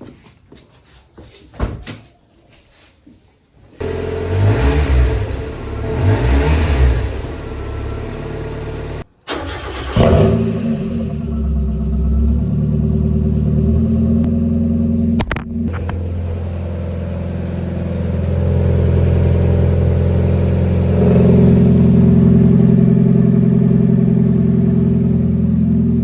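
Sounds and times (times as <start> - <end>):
car engine starting and revving: 3.8 - 26.0.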